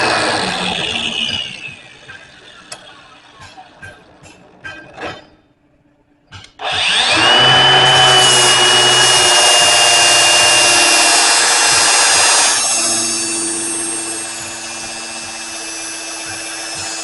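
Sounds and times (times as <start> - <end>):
grinder motor whining: 0.0 - 3.0, 6.6 - 17.0
harsh grinding of steel: 0.0 - 5.4, 6.4 - 17.0.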